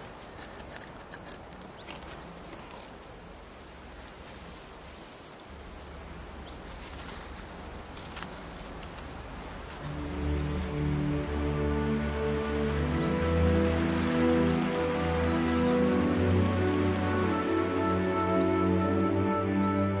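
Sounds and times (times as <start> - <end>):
twigs snapping: 0.0 - 3.0, 6.7 - 10.8
antlers rustling and scraping branches: 0.0 - 3.2, 6.6 - 11.0
bird chirps: 6.1 - 20.0.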